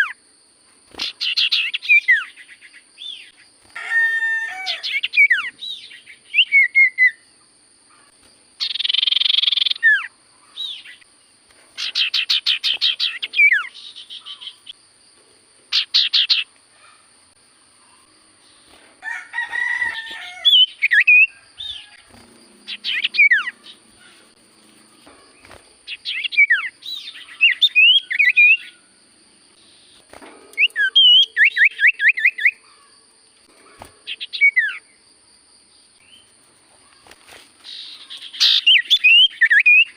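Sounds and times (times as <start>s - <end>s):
bird whistling and trilling: 4.9s - 7.2s, 8.6s - 10.9s, 11.8s - 14.6s, 22.7s - 23.8s, 25.9s - 28.7s, 30.6s - 32.6s, 34.1s - 34.8s, 38.2s - 39.9s.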